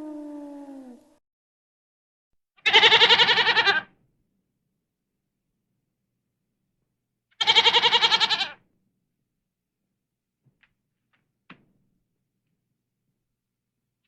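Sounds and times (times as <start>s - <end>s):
wavering animal bleat: 2.6s - 3.9s, 7.4s - 8.6s.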